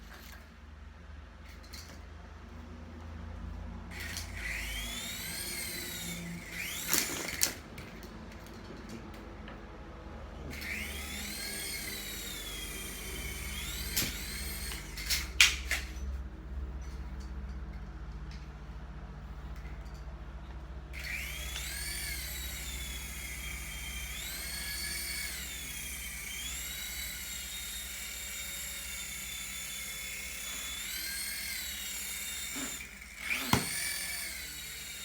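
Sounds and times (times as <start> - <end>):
electric rotor motors whining: 3.9 - 8.0, 10.4 - 16.1, 20.9 - 35.0.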